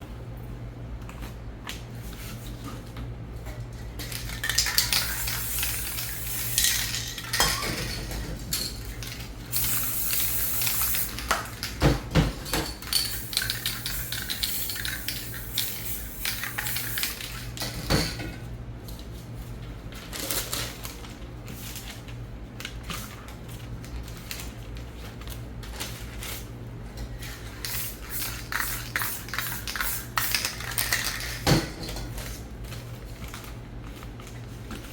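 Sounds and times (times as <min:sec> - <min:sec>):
spray paint cans clinking and rattling: 0:04.0 - 0:18.3, 0:27.5 - 0:32.4
hissing bursts of spray: 0:05.0 - 0:06.6, 0:09.5 - 0:11.2.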